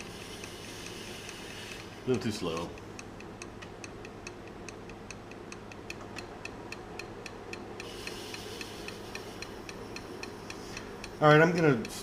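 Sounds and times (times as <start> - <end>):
wood lathe ticking and humming: 0.0 - 12.0
faint hiss: 7.8 - 11.5.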